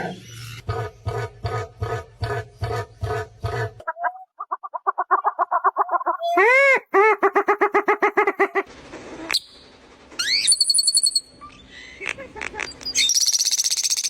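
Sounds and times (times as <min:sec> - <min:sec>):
bird trill with whistles: 0:10.2 - 0:11.6, 0:12.8 - 0:14.0.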